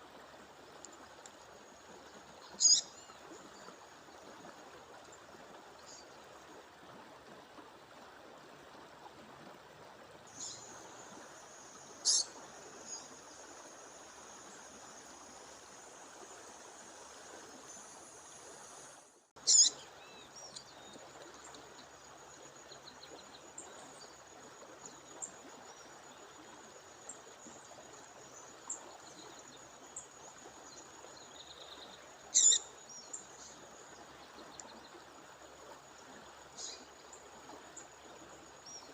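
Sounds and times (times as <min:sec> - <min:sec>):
rushing water: 0:00.0 - 0:38.9
bird calling sharply: 0:12.0 - 0:12.3, 0:19.5 - 0:19.7, 0:32.4 - 0:32.6.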